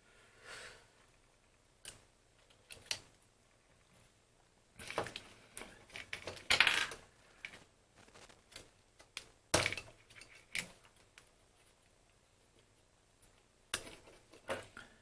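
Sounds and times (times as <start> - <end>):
small parts clicking and tapping: 4.8 - 12.6, 13.2 - 14.9
scraping rustle: 7.4 - 8.6.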